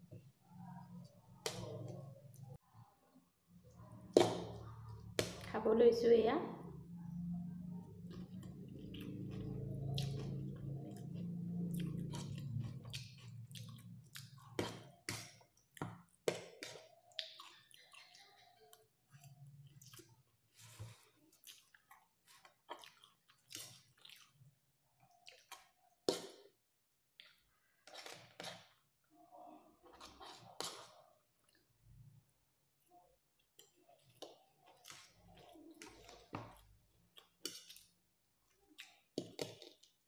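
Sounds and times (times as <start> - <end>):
person chewing noodles: 7.5 - 26.5, 33.2 - 40.0.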